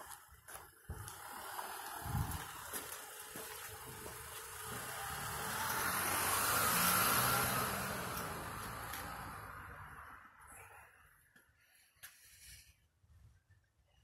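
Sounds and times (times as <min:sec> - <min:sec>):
vehicle passing: 0:00.0 - 0:10.8.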